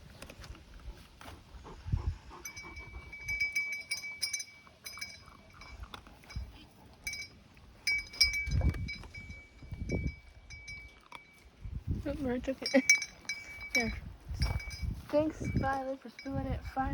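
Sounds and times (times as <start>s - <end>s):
metallic clinking with ringing: 2.4s - 11.5s, 12.5s - 16.6s.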